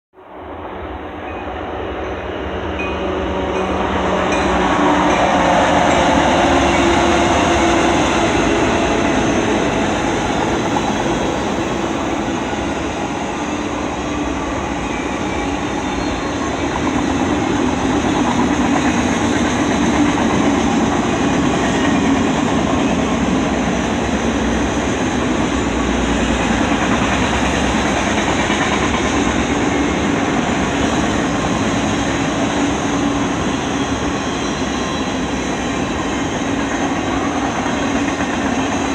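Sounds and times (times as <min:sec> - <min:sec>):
locomotive engine drone: 0:00.3 - 0:18.8
train wheels on rails: 0:00.5 - 0:38.9.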